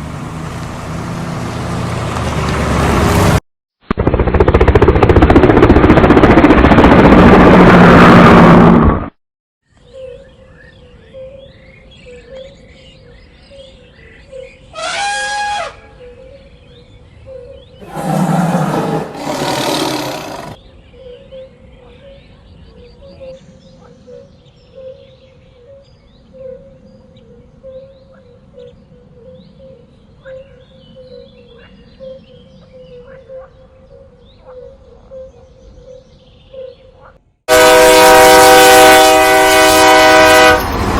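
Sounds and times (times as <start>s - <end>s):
loud drawn-out animal call: 14.8s - 15.8s, 17.8s - 20.6s
birds chirping: 15.9s - 37.1s
low pulsing animal call: 17.8s - 20.6s
loud horn blast: 37.5s - 40.9s.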